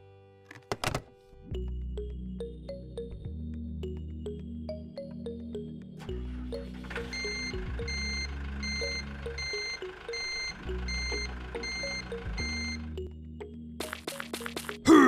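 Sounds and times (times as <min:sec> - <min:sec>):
background music: 0:00.0 - 0:15.0
truck reversing alarm beeping: 0:06.0 - 0:13.1.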